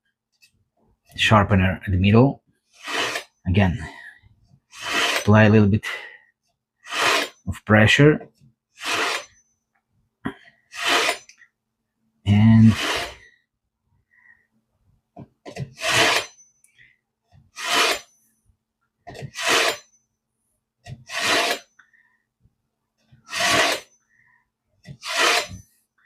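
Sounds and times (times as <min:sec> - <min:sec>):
knife scraping through sharpener: 0:02.8 - 0:03.4, 0:04.8 - 0:05.3, 0:06.8 - 0:07.4, 0:08.8 - 0:09.4, 0:10.7 - 0:11.4, 0:12.6 - 0:13.2, 0:15.7 - 0:16.4, 0:17.6 - 0:18.2, 0:19.1 - 0:20.0, 0:21.0 - 0:21.7, 0:23.3 - 0:23.9, 0:24.9 - 0:25.7.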